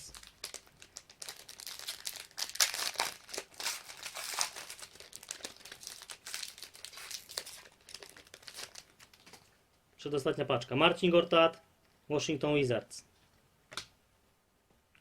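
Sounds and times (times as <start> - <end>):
wrapper crinkling and tearing: 0.0 - 9.5.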